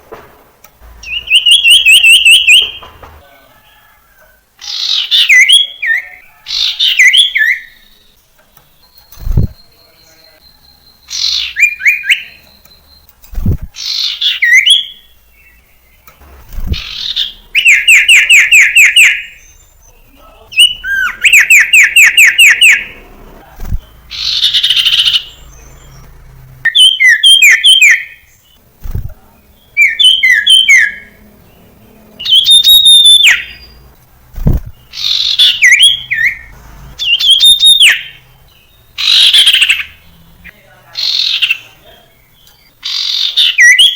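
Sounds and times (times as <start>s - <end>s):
bird singing whistles and trills: 1.0s - 2.9s, 8.6s - 13.1s, 13.8s - 22.9s, 26.7s - 28.4s, 29.6s - 31.1s, 32.2s - 33.8s, 34.6s - 40.0s, 42.3s - 43.9s.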